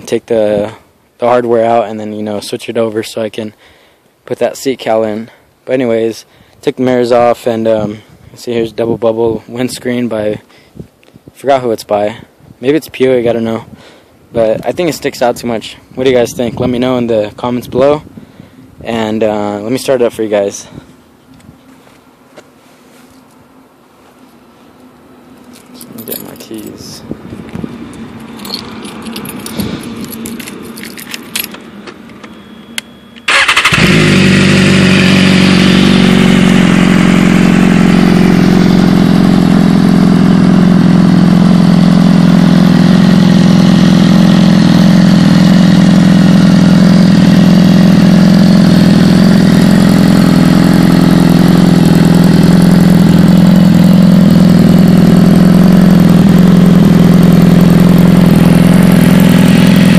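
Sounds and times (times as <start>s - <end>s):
keys jangling and clicking: 25.5s - 26.8s, 28.2s - 32.4s
motorcycle engine idling: 26.8s - 59.9s.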